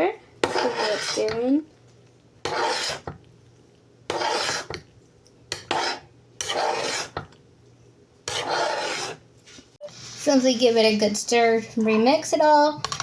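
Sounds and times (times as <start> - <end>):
spoon scraping a pot: 0.4 - 1.7, 2.4 - 3.3, 4.1 - 4.9, 5.5 - 7.4, 8.2 - 9.3.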